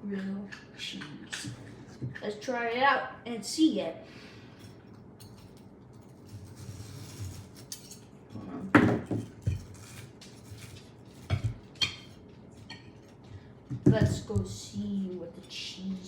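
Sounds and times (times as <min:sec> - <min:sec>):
utensils clattering against dishes: 0:07.3 - 0:15.8.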